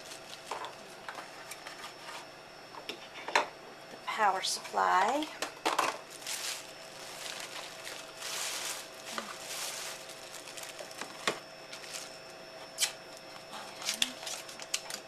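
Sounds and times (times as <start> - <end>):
packaging rustling: 0.0 - 2.0, 5.8 - 12.2.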